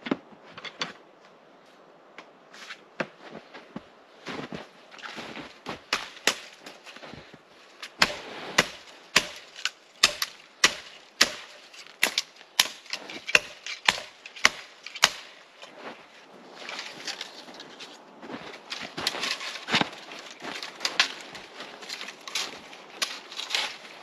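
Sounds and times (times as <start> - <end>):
shovel scraping firm snow: 4.3 - 5.8, 7.9 - 9.4, 12.9 - 14.6, 15.6 - 24.0.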